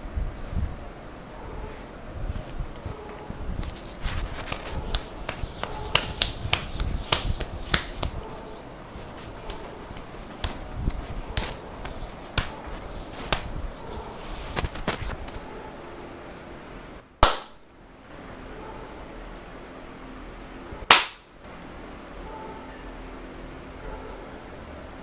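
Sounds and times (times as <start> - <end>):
hands slapping skin: 3.6 - 15.4, 17.2 - 17.6, 20.9 - 21.3.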